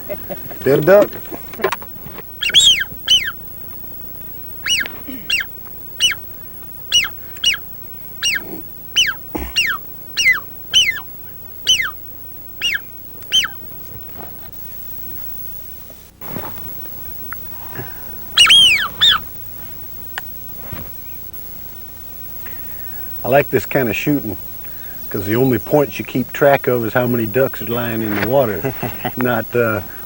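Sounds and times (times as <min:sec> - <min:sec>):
whistled duck calls: 0:02.4 - 0:03.4, 0:04.6 - 0:13.7, 0:18.2 - 0:19.4.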